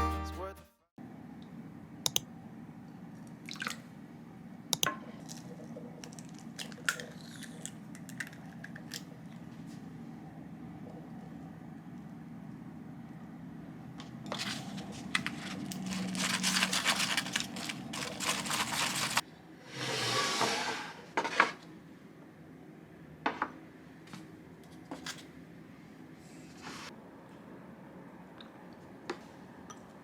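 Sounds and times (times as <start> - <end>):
rustling and crinkling: 14.0 - 19.2.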